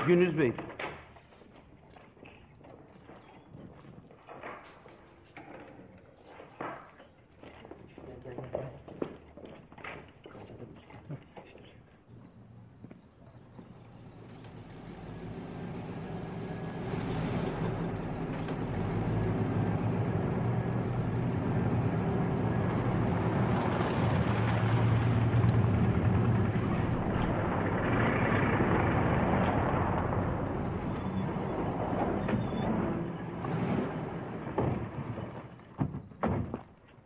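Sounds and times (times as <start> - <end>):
vehicle engines running: 13.3 - 35.8.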